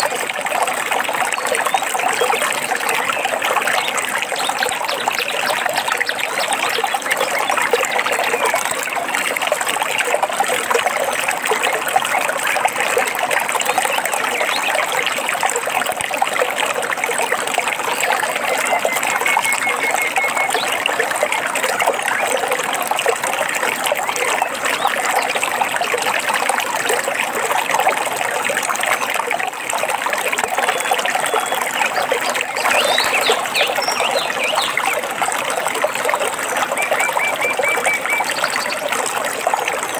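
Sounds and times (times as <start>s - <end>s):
stream water babbling: 0.0s - 39.9s
bird chirps: 32.6s - 34.7s.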